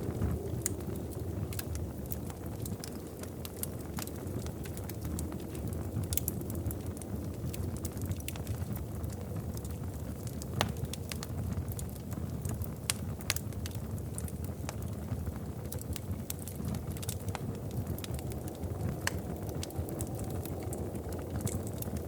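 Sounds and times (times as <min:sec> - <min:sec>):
steady low rumble: 0:00.0 - 0:09.7, 0:16.6 - 0:22.0
wood fire crackling: 0:00.0 - 0:22.0.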